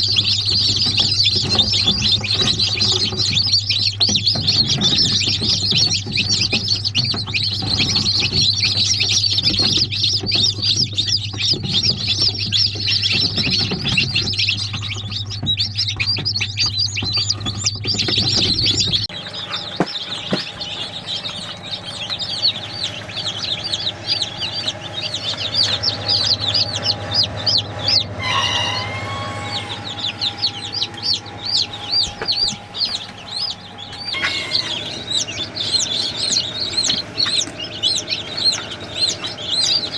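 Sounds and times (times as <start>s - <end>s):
chicks peeping: 0.0s - 39.9s
low hum: 14.5s - 39.9s
adult chicken call: 27.9s - 30.8s, 34.0s - 35.2s.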